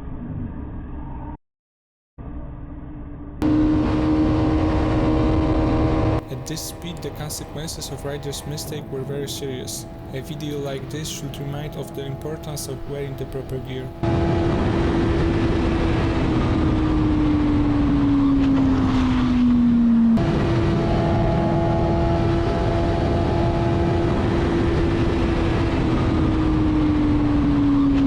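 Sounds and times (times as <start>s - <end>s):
motorcycle engine droning: 3.4s - 28.0s.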